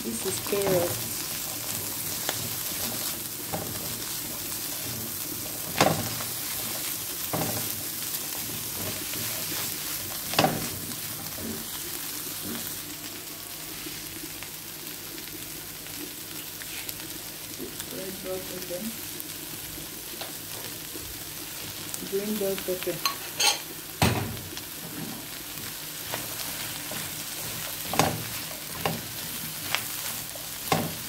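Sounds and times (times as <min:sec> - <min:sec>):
food sizzling in oil: 0:00.0 - 0:31.0
spatula knocking and scraping pan: 0:00.4 - 0:12.8, 0:26.1 - 0:29.9.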